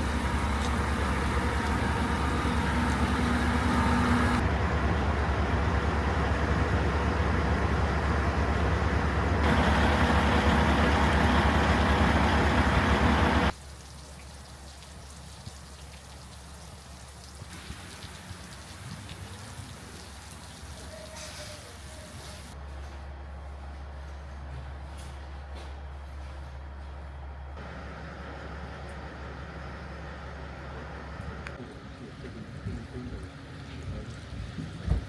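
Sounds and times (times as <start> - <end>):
train rumbling: 0.0 - 13.6, 20.8 - 35.0.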